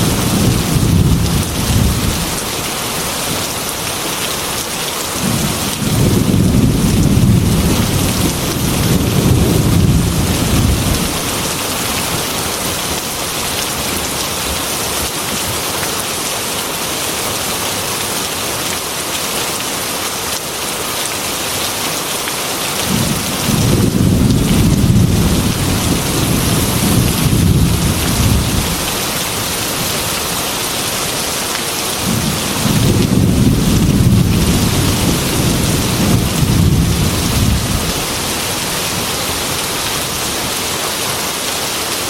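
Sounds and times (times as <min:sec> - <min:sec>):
thunder rumbling: 0:00.0 - 0:02.4, 0:05.2 - 0:12.5, 0:22.9 - 0:30.4, 0:32.0 - 0:39.5
heavy rain on a metal roof: 0:00.0 - 0:42.0.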